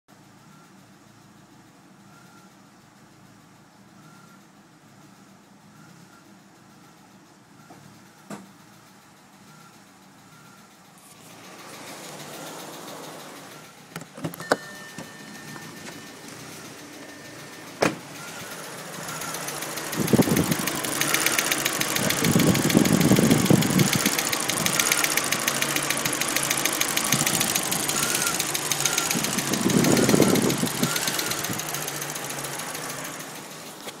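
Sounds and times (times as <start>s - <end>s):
car engine running: 7.8s - 34.0s
fast even ticking: 18.4s - 33.6s.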